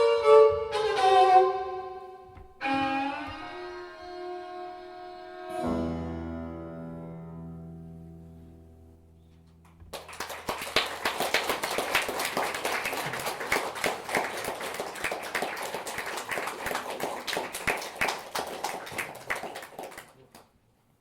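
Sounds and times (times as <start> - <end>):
audience applauding: 9.9 - 20.5.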